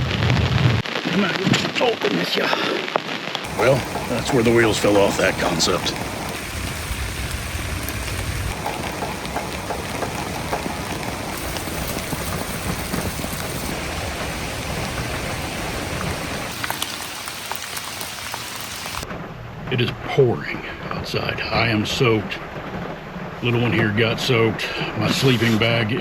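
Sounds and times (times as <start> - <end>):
heavy rain pouring: 0.0 - 19.1, 20.4 - 26.0
low rumble: 3.5 - 16.6.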